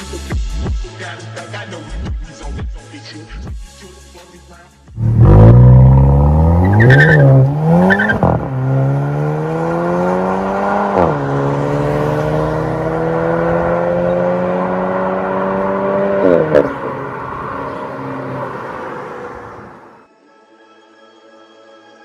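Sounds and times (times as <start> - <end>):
car engine accelerating: 5.0 - 19.9.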